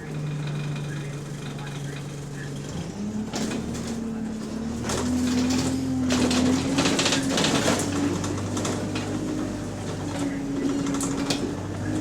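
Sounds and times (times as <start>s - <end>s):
bus engine pulling under load: 0.0s - 12.0s.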